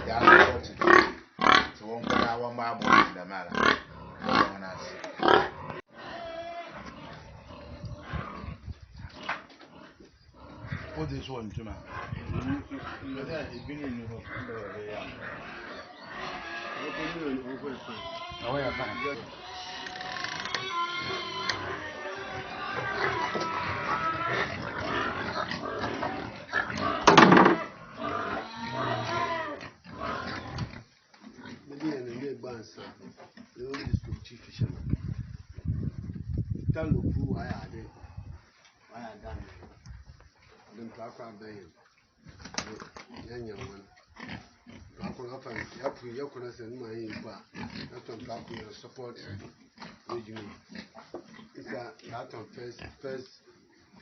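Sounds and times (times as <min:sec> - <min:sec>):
pigs grunting: 0:00.0 - 0:35.2, 0:40.6 - 0:54.0
pig high call: 0:02.9 - 0:07.2, 0:14.3 - 0:25.2, 0:25.9 - 0:30.6.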